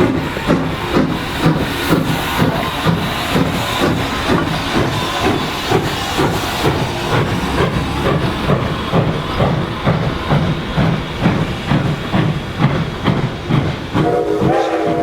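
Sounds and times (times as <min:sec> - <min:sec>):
steam hissing: 0:00.0 - 0:15.0
steam locomotive chuffing: 0:00.0 - 0:15.0.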